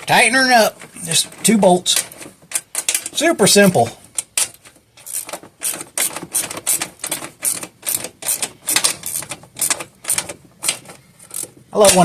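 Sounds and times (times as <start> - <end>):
ratchet wrench clicking: 4.2 - 12.0.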